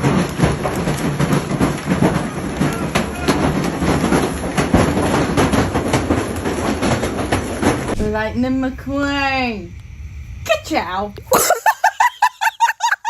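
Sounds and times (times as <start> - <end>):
train wheels clacking: 0.0 - 8.5
train rumble: 0.0 - 13.0.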